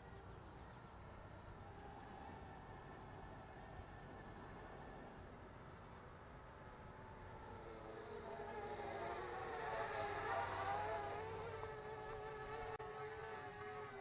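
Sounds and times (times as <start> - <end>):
drone propellers buzzing: 6.6 - 14.0.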